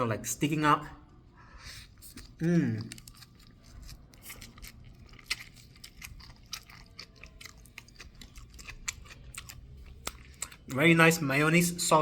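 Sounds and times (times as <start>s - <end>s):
person chewing sandwich: 1.4s - 10.8s.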